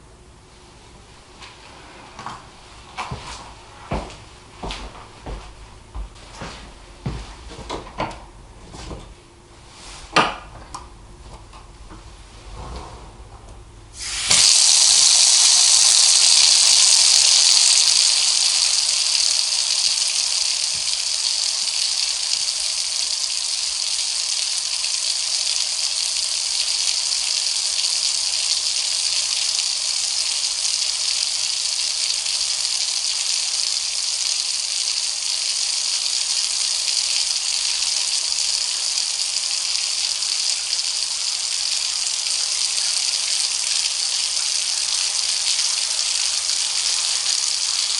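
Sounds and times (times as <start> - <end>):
tap water gushing into bath: 14.0 - 47.9.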